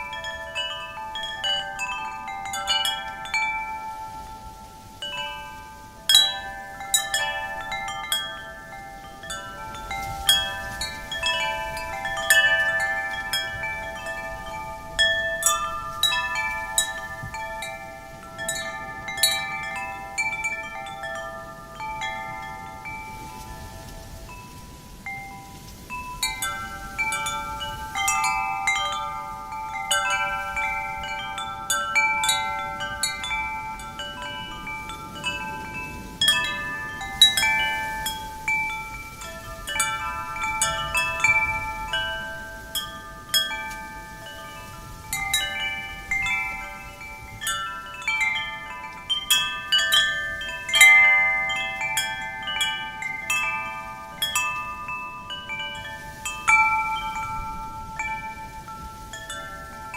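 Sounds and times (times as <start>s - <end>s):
faint breeze: 0.0s - 59.9s
metal wind chimes ringing: 0.0s - 59.9s.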